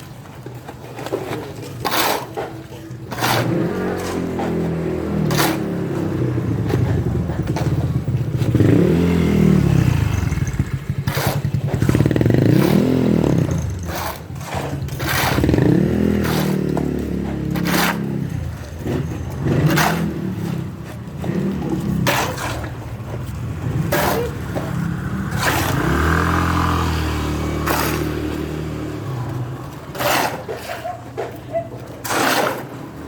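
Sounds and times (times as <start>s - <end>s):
engine revving: 3.2s - 30.5s
sharp scrapes or knocks: 9.9s - 33.0s.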